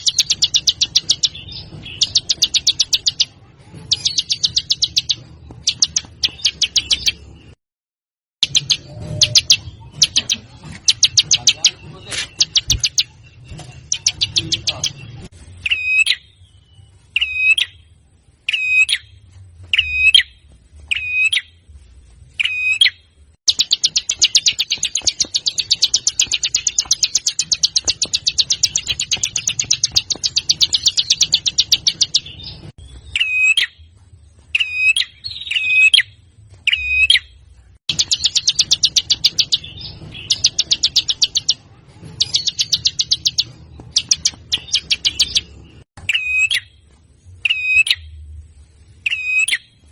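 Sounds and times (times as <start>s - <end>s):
fast rattling bird trills: 0.0s - 7.2s, 8.4s - 13.2s, 13.8s - 15.0s, 23.5s - 33.7s, 37.9s - 41.6s, 42.2s - 46.6s
sharp high bird calls: 42.2s - 46.8s, 49.0s - 49.7s.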